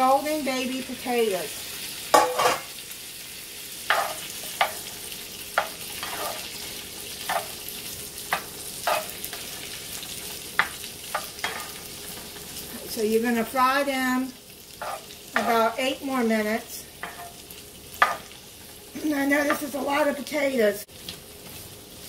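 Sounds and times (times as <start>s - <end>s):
potatoes sizzling in a skillet: 0.0s - 22.0s
spatula scraping and knocking pan: 2.2s - 2.7s, 3.9s - 4.9s, 5.5s - 6.6s, 7.2s - 7.6s, 8.3s - 9.6s, 10.6s - 12.3s, 14.8s - 17.4s, 18.0s - 18.4s, 19.4s - 19.8s.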